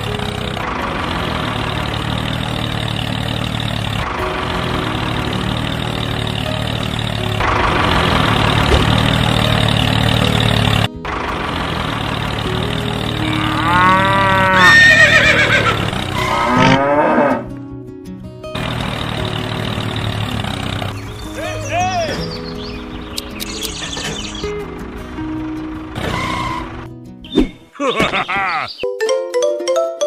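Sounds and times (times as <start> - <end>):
tractor engine running: 0.0 - 16.8, 18.5 - 27.4
cow mooing: 13.2 - 17.5
horse whinnying: 13.2 - 17.5.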